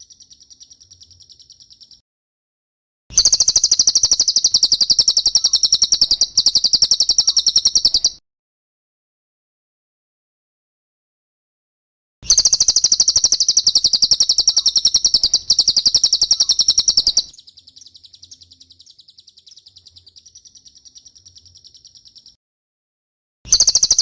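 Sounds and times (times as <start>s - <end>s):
bird trilling high chirps: 0.0s - 2.0s, 3.2s - 8.2s, 12.2s - 22.4s, 23.5s - 24.0s.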